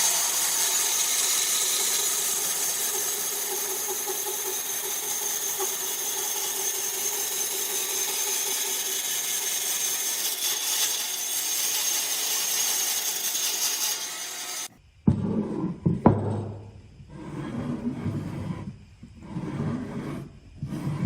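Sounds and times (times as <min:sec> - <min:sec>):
power tool cutting wood: 0:00.0 - 0:14.7.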